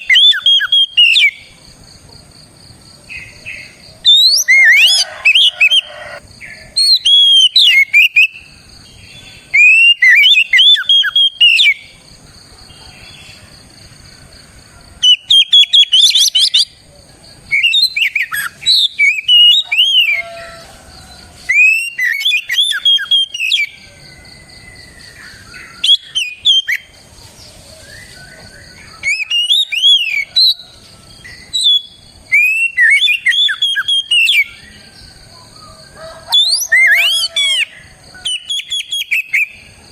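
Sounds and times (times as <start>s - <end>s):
bird singing whistled phrases: 0.0s - 1.5s, 4.0s - 5.9s, 6.8s - 8.5s, 9.5s - 11.9s, 15.0s - 16.7s, 17.5s - 20.6s, 21.5s - 23.8s, 25.7s - 26.9s, 27.8s - 30.6s, 31.3s - 34.6s, 35.6s - 39.7s.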